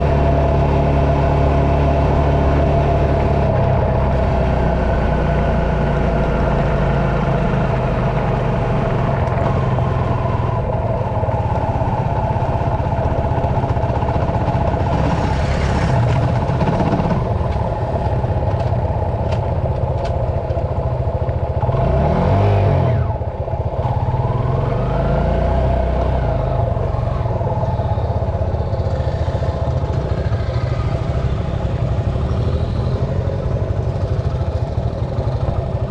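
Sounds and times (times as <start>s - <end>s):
dirt bike passing by: 14.4s - 18.0s.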